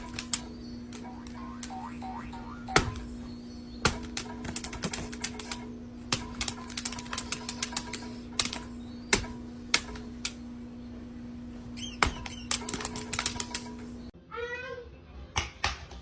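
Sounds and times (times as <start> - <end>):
steady hum: 0.0 - 14.2.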